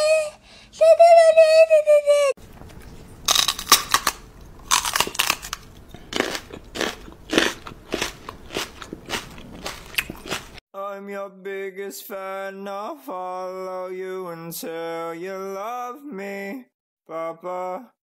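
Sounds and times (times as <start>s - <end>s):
dog chewing crunchy food: 2.5s - 10.6s.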